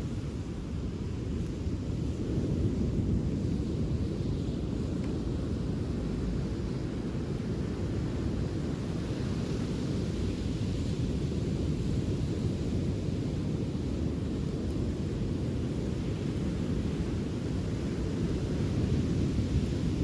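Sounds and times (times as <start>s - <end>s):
wind: 0.0s - 20.0s.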